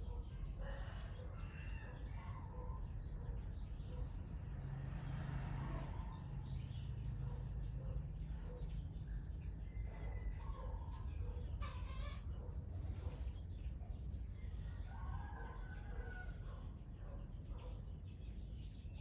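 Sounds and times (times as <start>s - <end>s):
birds calling: 5.9s - 19.0s.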